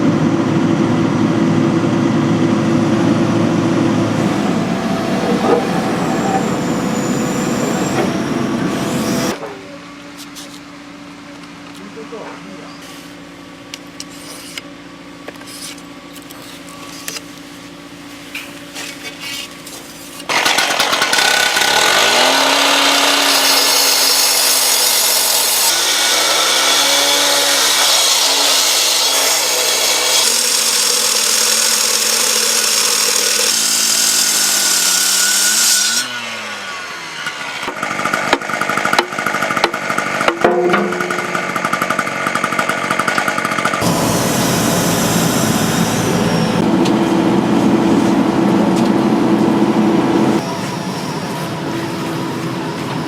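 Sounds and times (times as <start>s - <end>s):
low engine hum: 0.0s - 9.3s, 43.8s - 53.0s
power tool cutting: 3.9s - 9.4s, 20.3s - 48.5s
knocking and scraping: 40.3s - 41.8s.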